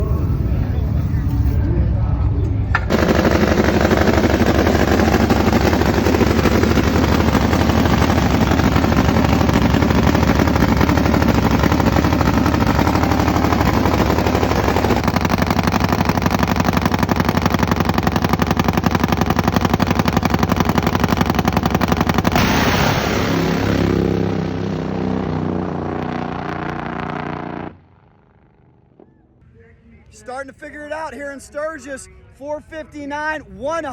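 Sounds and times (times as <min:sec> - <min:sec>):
drag bike engine hammering: 0:02.3 - 0:29.1.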